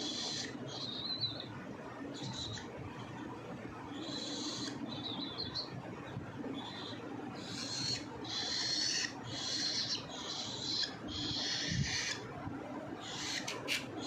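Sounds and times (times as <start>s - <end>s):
parrot chicks begging cries: 0.0s - 1.5s, 2.1s - 2.8s, 3.9s - 5.8s, 6.6s - 12.3s, 13.0s - 14.0s.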